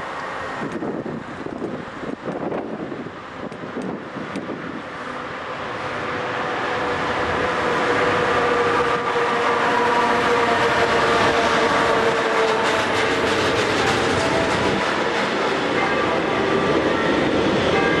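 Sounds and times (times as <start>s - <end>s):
freight train passing: 0.0s - 18.0s
wheels clicking over rails: 11.1s - 15.9s.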